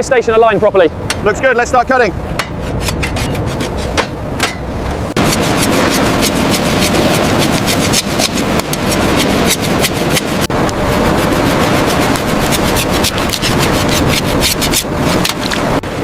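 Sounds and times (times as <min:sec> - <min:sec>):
knife scraping fish: 0:02.4 - 0:04.2, 0:05.2 - 0:15.7.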